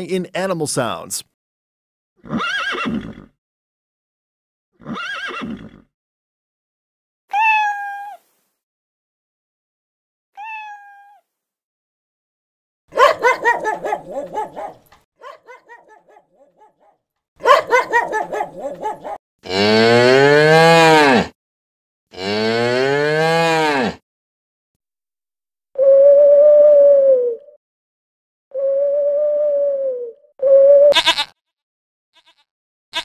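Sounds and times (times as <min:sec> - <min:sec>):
cat meowing: 0:07.3 - 0:08.2, 0:10.4 - 0:11.2
small dog yapping: 0:13.0 - 0:19.2
cow mooing: 0:19.4 - 0:21.3, 0:22.1 - 0:24.0.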